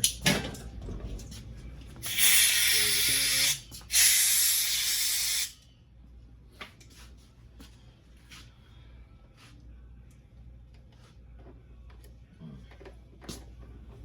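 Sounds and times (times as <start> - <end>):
compressed air blow gun hissing: 2.1 - 5.5.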